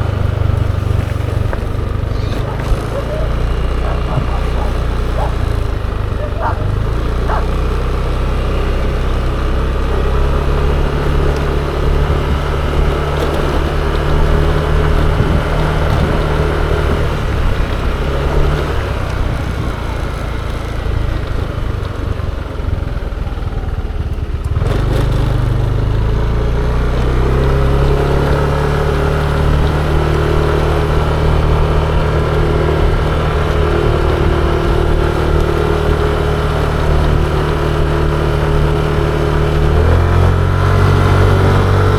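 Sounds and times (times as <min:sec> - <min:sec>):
road noise: 0:00.0 - 0:41.9
scooter engine running: 0:00.0 - 0:41.9.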